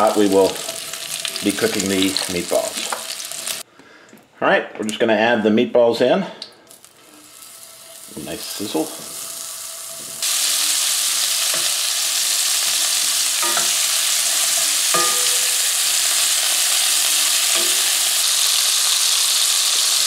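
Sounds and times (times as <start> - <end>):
meatballs sizzling in hot oil: 0.0 - 3.6, 6.8 - 20.0
wooden spoon knocking pan: 14.8 - 16.0.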